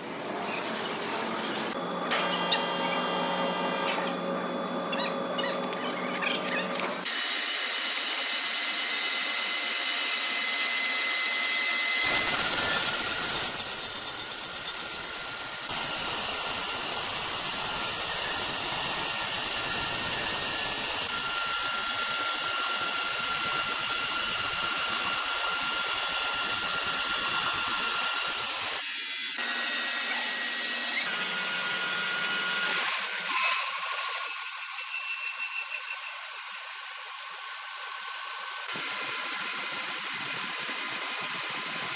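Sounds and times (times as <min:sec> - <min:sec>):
sawmill machinery whining: 0:00.2 - 0:41.9
saw screeches: 0:10.0 - 0:28.8, 0:32.6 - 0:38.5.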